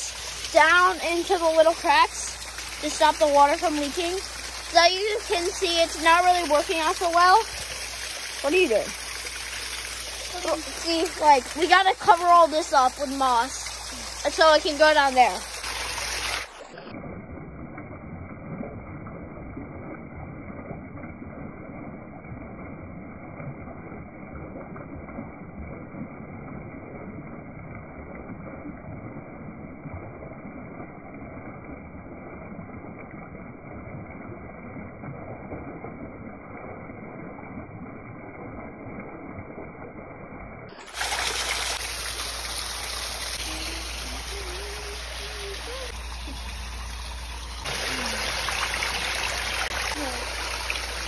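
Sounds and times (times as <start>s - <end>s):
small waterfall rushing: 0.0s - 16.9s, 40.8s - 51.0s.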